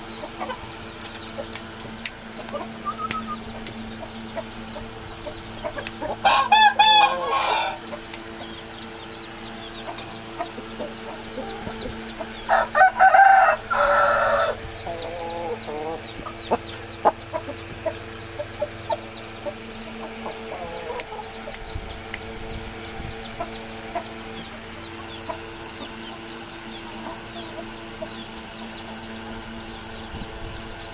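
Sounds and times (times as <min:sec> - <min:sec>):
steady hum: 0:00.0 - 0:30.9
rooster clucking: 0:00.2 - 0:08.6, 0:09.8 - 0:26.0
rooster crowing: 0:06.2 - 0:07.9, 0:12.4 - 0:16.0.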